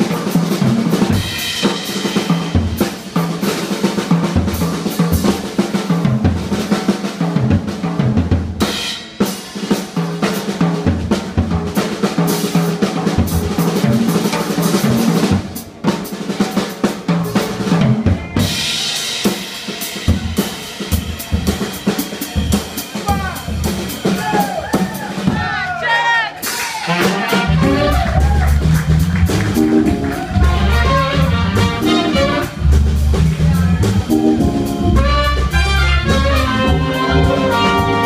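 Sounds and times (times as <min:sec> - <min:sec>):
drum kit fills: 0:00.0 - 0:38.0
funk band playing: 0:00.0 - 0:38.0
organ bass line: 0:27.5 - 0:38.0.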